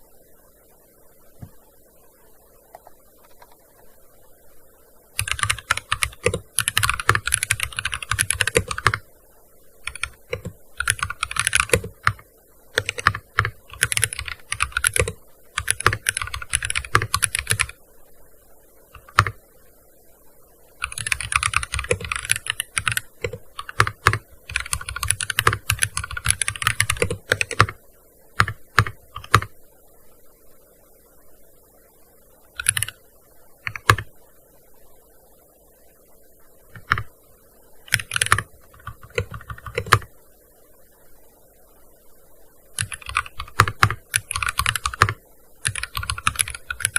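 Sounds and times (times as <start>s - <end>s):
keyboard typing: 5.2s - 9.0s, 9.8s - 17.8s, 18.9s - 19.4s, 20.8s - 27.8s, 28.4s - 29.5s, 32.6s - 33.0s, 33.6s - 34.1s, 36.7s - 37.1s, 37.9s - 40.1s, 42.8s - 46.9s.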